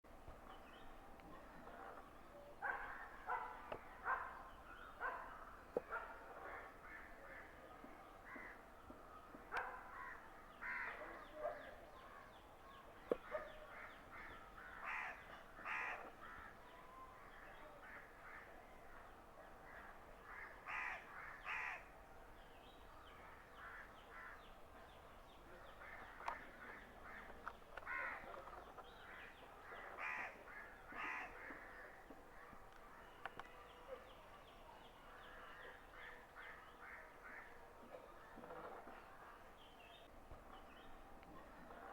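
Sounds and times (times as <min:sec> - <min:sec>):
crows cawing: 0:10.0 - 0:11.0, 0:13.8 - 0:16.6, 0:20.3 - 0:21.9, 0:26.6 - 0:28.3, 0:30.0 - 0:31.9.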